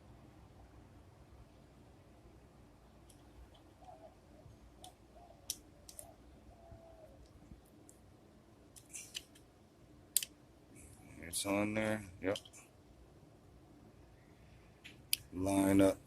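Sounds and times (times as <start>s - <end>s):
small parts and tools clicking: 3.0s - 4.0s, 4.8s - 6.1s, 8.7s - 9.5s, 10.1s - 10.4s, 12.3s - 12.7s.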